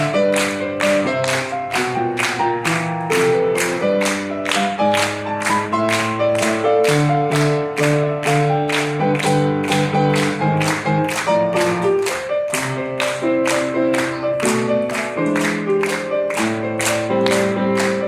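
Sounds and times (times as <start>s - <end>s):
solo piano pop melody: 0.0s - 18.0s.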